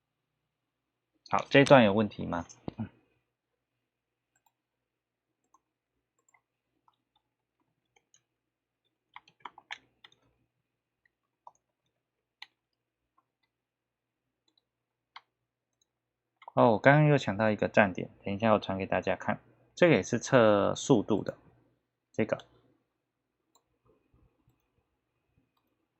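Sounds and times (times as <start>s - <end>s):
keyboard and mouse clicks: 4.3s - 4.6s, 5.4s - 8.3s, 9.1s - 10.4s, 11.3s - 12.6s, 14.4s - 16.6s.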